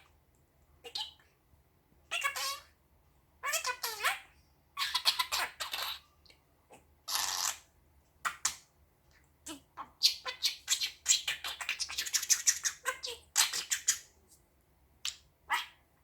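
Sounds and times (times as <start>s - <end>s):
budgie chirping and warbling: 0.8s - 1.2s, 3.4s - 6.0s, 6.7s - 7.6s, 9.5s - 14.1s.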